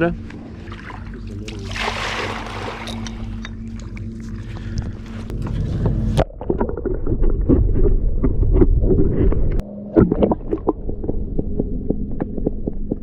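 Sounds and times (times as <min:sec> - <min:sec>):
muffled low rumbling: 0:00.0 - 0:13.0.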